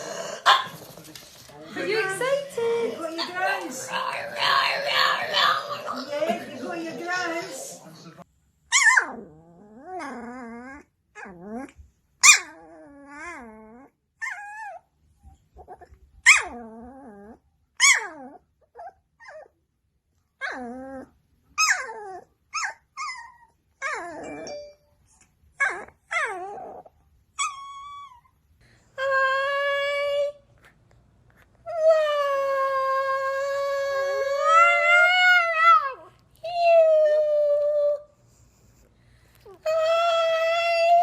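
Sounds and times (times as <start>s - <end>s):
dog whining and yipping: 8.7s - 14.8s, 20.4s - 24.7s, 25.6s - 28.4s.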